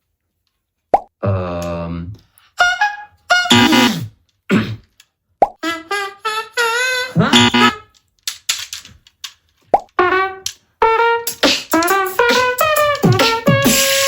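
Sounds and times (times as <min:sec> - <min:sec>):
beatboxing: 0:03.4 - 0:04.6, 0:07.0 - 0:07.8, 0:11.3 - 0:14.0.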